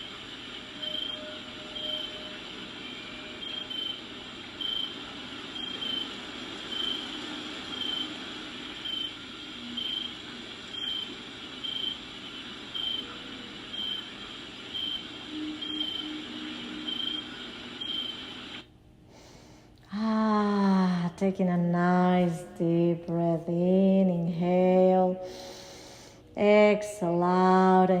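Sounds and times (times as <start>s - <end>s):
rain hissing: 0.0s - 18.7s
cricket chirping: 0.8s - 4.0s, 4.6s - 5.0s, 5.6s - 6.1s, 6.7s - 8.1s, 8.8s - 12.0s, 12.7s - 14.1s, 14.7s - 16.2s, 16.8s - 18.4s.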